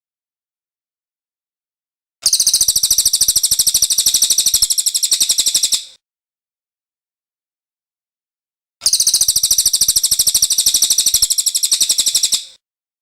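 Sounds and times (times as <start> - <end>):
bird high-pitched trill: 2.2 - 6.0, 8.8 - 12.6.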